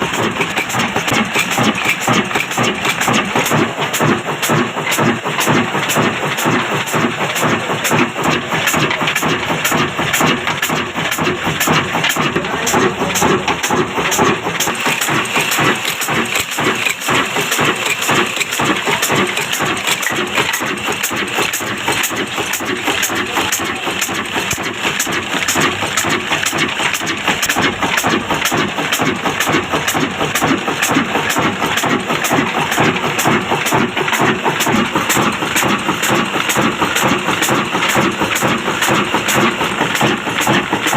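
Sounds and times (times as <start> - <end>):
stationary diesel engine running: 0.0 - 40.9.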